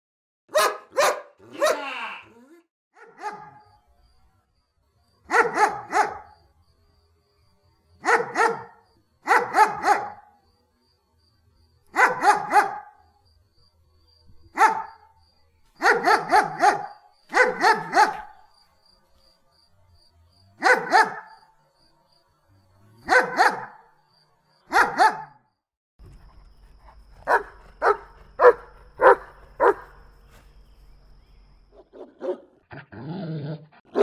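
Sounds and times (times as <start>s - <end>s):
dog barking: 0.5s - 2.0s, 3.0s - 3.7s, 5.3s - 6.4s, 8.0s - 10.3s, 11.9s - 13.0s, 14.5s - 15.1s, 15.8s - 18.5s, 20.6s - 21.5s, 23.0s - 23.9s, 24.7s - 25.5s, 26.8s - 30.1s, 31.8s - 32.6s.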